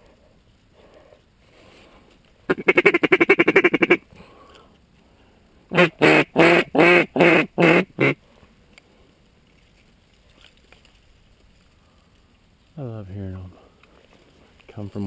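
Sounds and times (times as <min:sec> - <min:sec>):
duck quacking: 0:02.5 - 0:04.0, 0:05.7 - 0:08.2.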